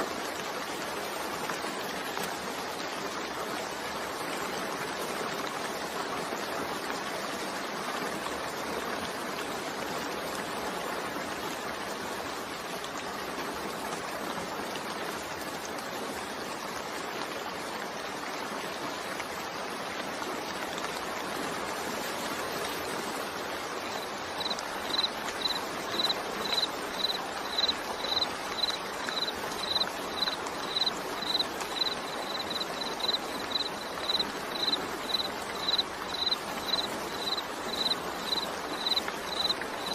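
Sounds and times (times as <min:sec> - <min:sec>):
steady rain: 0:00.0 - 0:39.9
pulsing insect chirp: 0:23.9 - 0:39.9.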